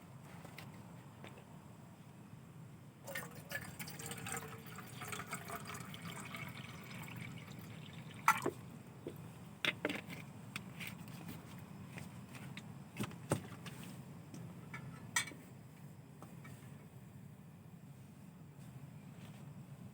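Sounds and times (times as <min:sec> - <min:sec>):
liquid pouring into container: 0:03.1 - 0:08.6.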